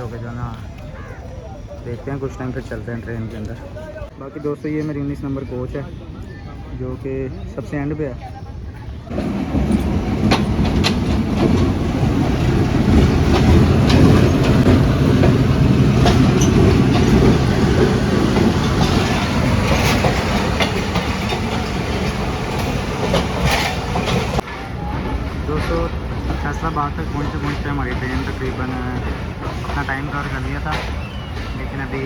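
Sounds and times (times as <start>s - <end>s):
train coaches rumbling: 0.0s - 32.0s
wheels clicking over rail joints: 9.1s - 32.0s.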